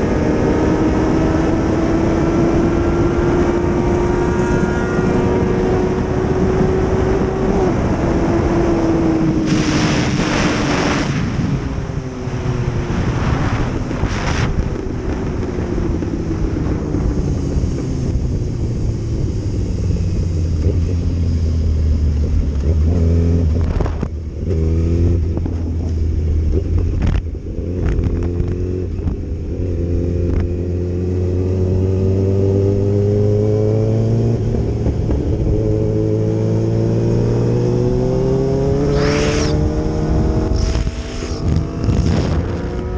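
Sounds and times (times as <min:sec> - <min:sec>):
motorcycle engine running: 0:10.0 - 0:42.9.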